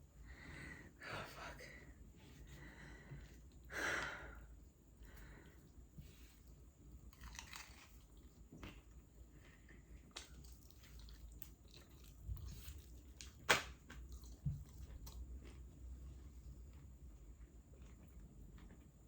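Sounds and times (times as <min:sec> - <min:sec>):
person chewing fried chicken: 0:06.5 - 0:19.0.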